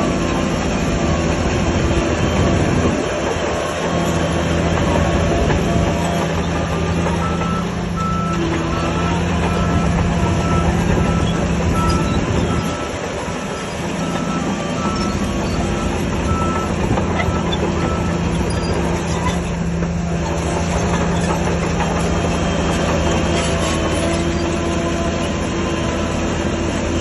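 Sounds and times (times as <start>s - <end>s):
heavy diesel engine under load: 0.0s - 27.0s
reversing alarm beeping: 6.9s - 18.8s.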